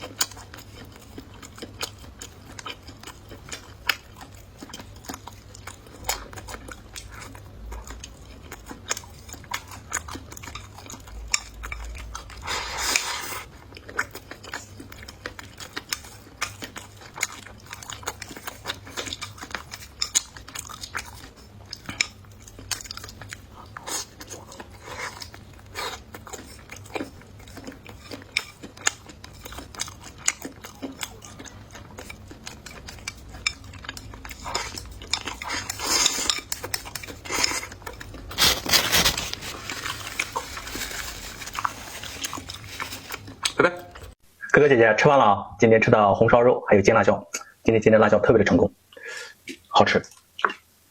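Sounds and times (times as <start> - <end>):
chewing and biting: 0.0 - 44.2.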